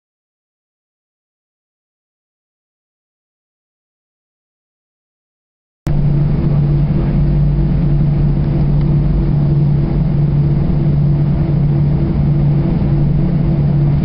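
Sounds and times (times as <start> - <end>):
jet engines inside cabin: 5.9 - 14.0.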